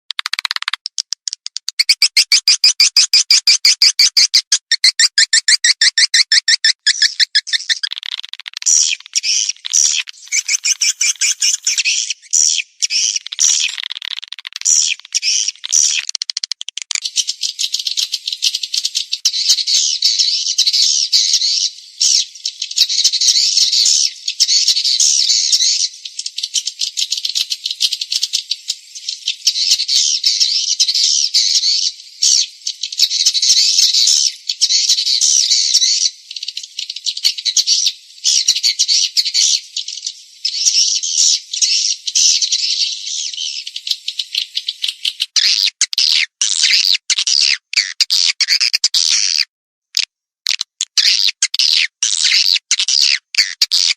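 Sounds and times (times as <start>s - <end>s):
swiftlets twittering: 0.3s - 14.0s.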